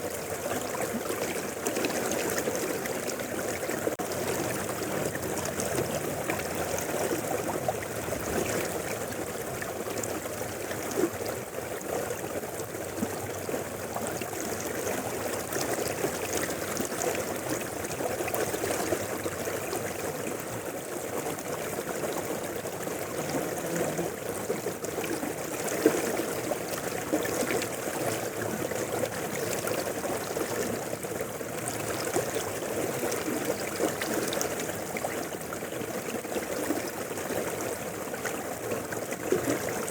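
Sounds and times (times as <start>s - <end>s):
river water rushing: 0.5s - 11.0s, 20.9s - 30.9s.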